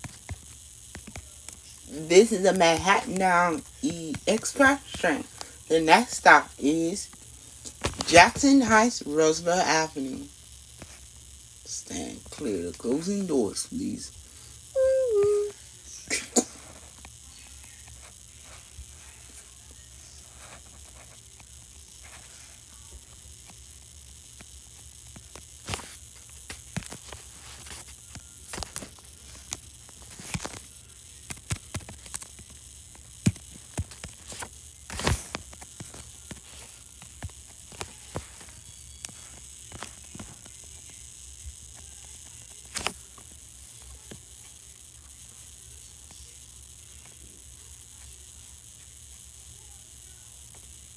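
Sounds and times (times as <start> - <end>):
sharp clicks and crackles: 23.4 - 44.6.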